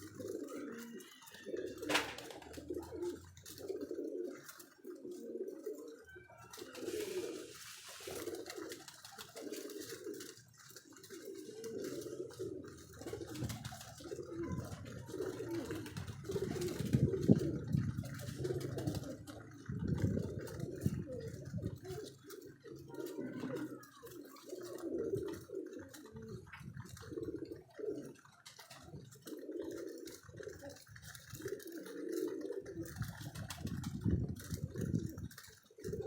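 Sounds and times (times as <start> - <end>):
pigeons cooing: 0.0 - 36.0.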